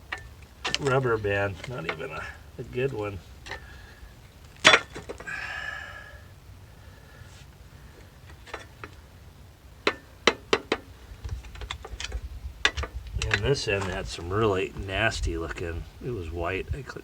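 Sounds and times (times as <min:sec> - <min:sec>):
metal parts clicking and clinking: 0:00.0 - 0:03.7, 0:04.4 - 0:05.3, 0:08.2 - 0:09.0.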